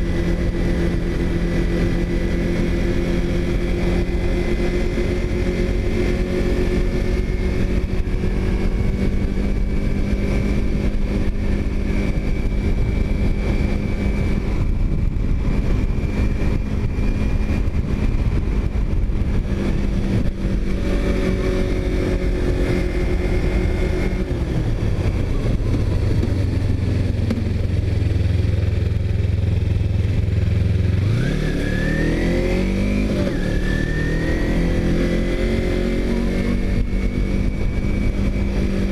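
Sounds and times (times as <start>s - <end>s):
motorcycle engine revving: 0.0s - 38.9s
wind noise: 0.0s - 38.9s.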